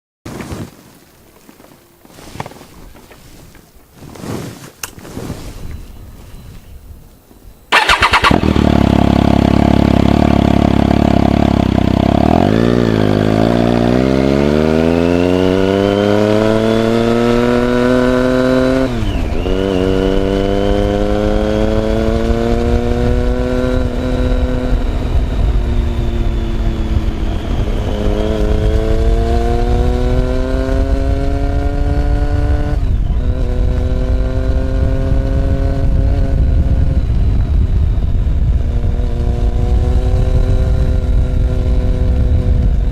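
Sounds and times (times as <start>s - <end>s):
motorcycle engine accelerating: 7.7s - 42.9s
wind rush on microphone: 14.9s - 42.9s.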